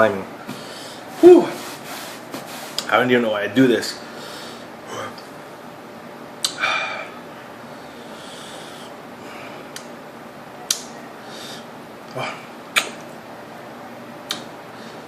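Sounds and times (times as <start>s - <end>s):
man breathing hard and sniffing: 0.5s - 2.2s, 4.0s - 5.2s, 6.5s - 9.8s, 11.2s - 12.4s.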